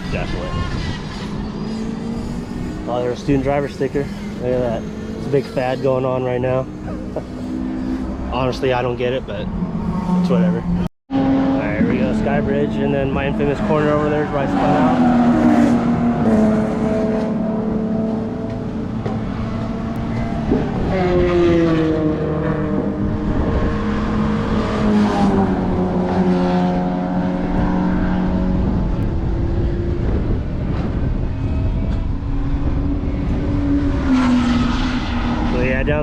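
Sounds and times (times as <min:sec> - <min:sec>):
race car engines accelerating: 0:00.0 - 0:36.0.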